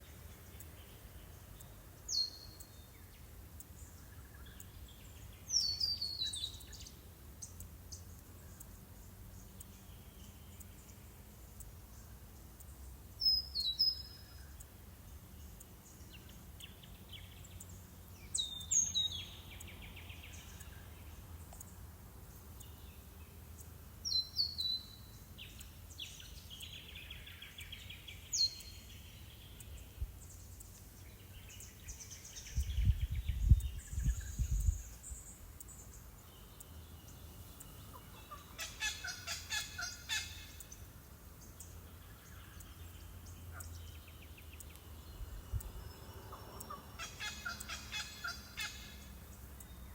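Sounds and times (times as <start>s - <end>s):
wind rumble on microphone: 32.4s - 35.2s, 45.1s - 45.9s
birds warbling chatter: 37.8s - 40.6s, 46.3s - 49.0s
birds downward-sweeping calls: 37.8s - 40.9s, 45.9s - 49.2s.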